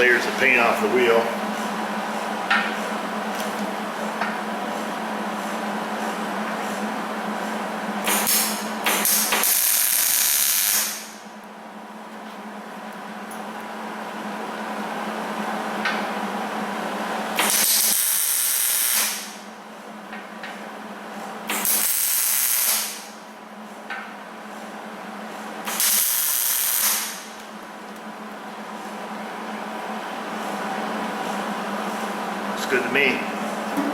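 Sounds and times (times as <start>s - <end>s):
welder sizzling hiss: 25.7s - 27.2s.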